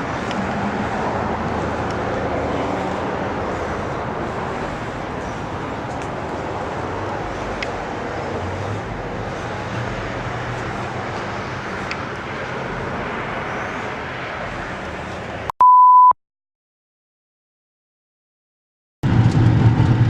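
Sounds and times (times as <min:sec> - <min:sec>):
vehicle and road noise: 0:00.0 - 0:15.5, 0:19.0 - 0:20.0
loud electronic beep: 0:15.6 - 0:16.2.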